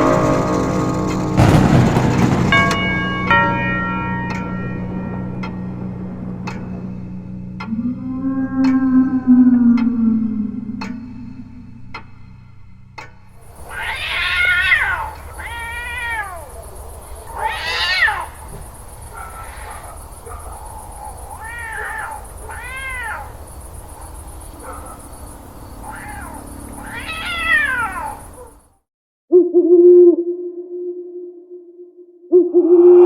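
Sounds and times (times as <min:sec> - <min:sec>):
steady low tone: 0:00.0 - 0:17.4, 0:18.3 - 0:28.7, 0:29.3 - 0:33.0
low rumble and hiss: 0:00.0 - 0:28.8
cat meowing and yowling: 0:13.6 - 0:18.5, 0:21.0 - 0:23.4, 0:25.8 - 0:28.6.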